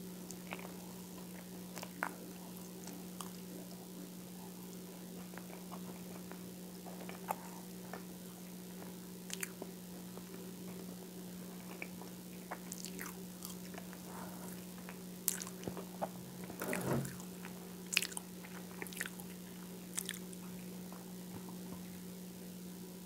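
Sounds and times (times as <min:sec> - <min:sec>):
steady low hum: 0:00.0 - 0:23.0
person chewing: 0:08.7 - 0:10.9, 0:11.6 - 0:16.2, 0:17.9 - 0:20.4.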